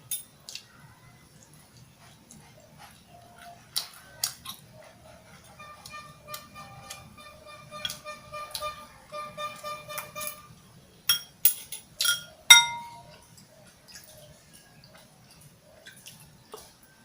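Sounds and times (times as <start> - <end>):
faint background music: 0.0 - 17.0
tableware clinking: 11.1 - 13.2.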